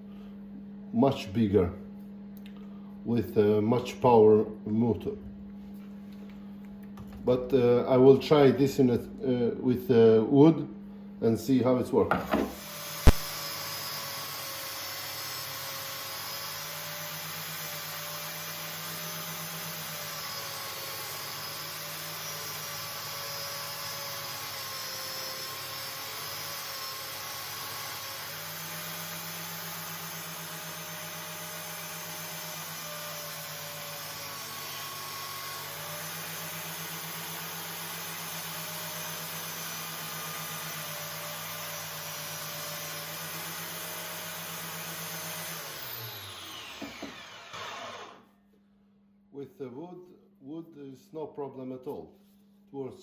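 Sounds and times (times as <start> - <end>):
electric power tool whining: 12.1 - 48.3.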